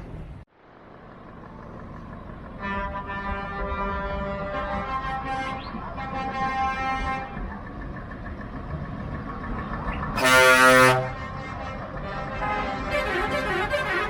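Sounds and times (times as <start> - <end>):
truck air horn blasts: 2.5 - 7.5, 10.2 - 14.0.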